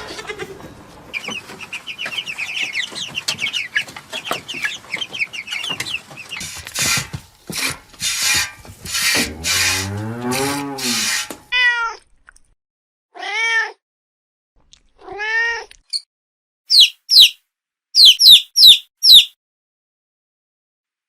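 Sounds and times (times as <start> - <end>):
cat meowing: 11.5 - 12.0, 13.2 - 13.8, 15.0 - 15.7
small bird chirping: 16.7 - 17.4, 18.0 - 19.3.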